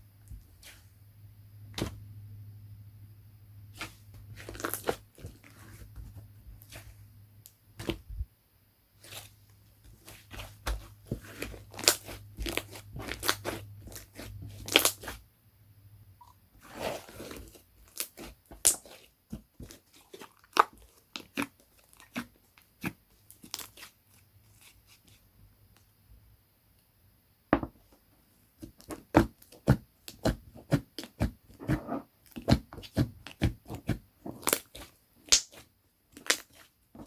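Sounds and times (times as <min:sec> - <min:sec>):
slime sticky clicks and pops: 0:35.3 - 0:35.6.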